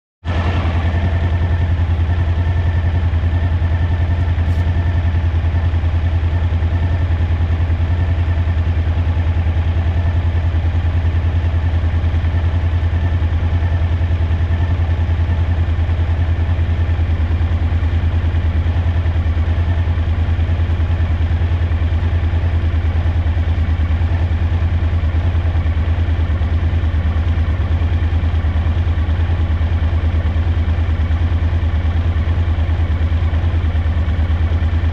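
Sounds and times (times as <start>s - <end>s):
engine misfire: 0.2s - 5.2s
motorcycle engine running: 0.2s - 34.9s.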